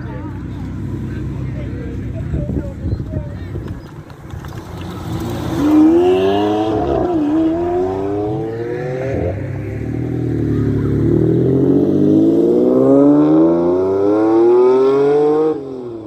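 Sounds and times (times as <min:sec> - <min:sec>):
sports car engines accelerating hard: 0:03.5 - 0:16.0.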